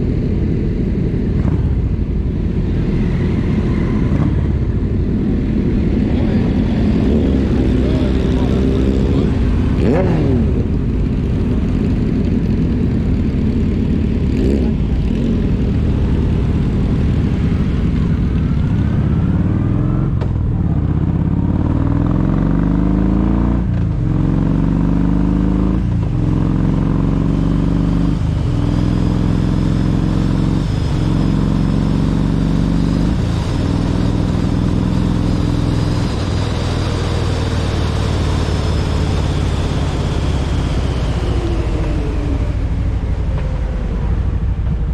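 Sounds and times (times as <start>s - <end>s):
motorcycle engine accelerating: 0.0s - 44.9s.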